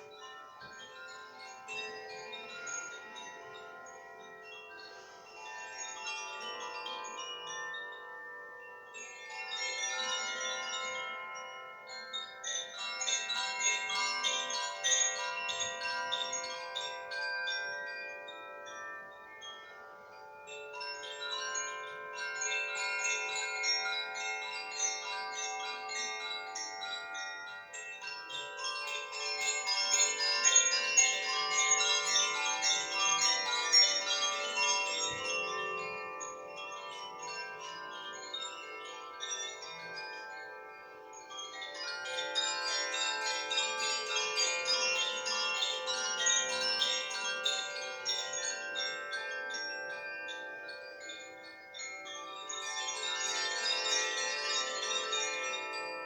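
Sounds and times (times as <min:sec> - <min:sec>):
wind chimes tinkling: 0:00.0 - 0:56.0.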